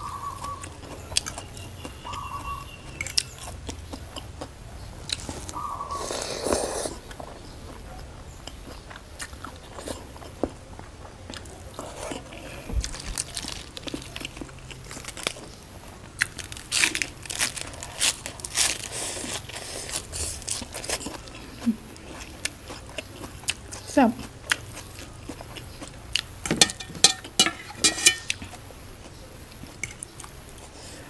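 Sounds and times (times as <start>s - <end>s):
chewing noodles: 0.2s - 15.6s, 16.2s - 26.3s
crunching lettuce: 5.0s - 7.8s, 11.4s - 23.9s.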